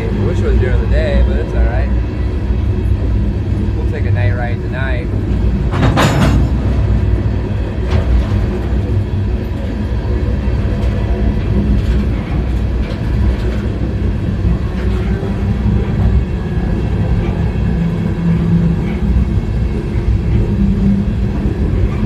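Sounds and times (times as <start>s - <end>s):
freight train rumbling: 0.0s - 22.0s
knocks and rattles: 5.1s - 22.0s.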